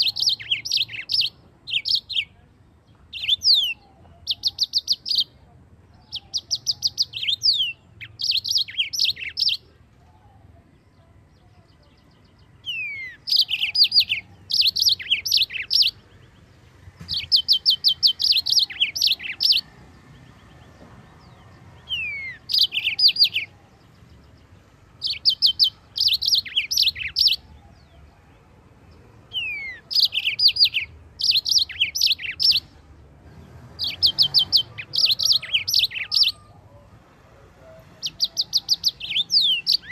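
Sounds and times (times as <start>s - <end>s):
canary singing trilled notes: 0.0s - 2.4s, 3.0s - 16.4s, 17.0s - 28.0s, 29.3s - 36.8s, 38.0s - 39.9s.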